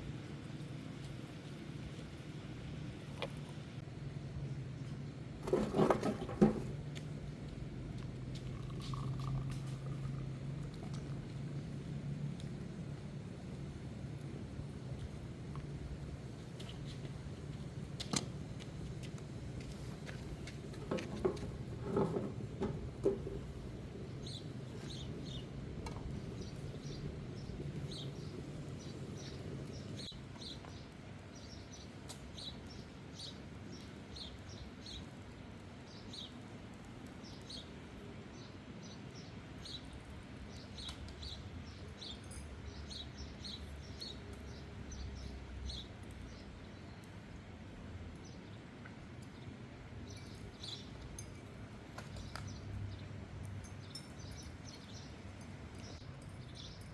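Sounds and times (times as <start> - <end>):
low background noise: 0.0 - 56.9
knocks and clatters: 5.4 - 6.9, 20.6 - 23.6
small birds chirping: 19.7 - 47.3, 48.2 - 56.9.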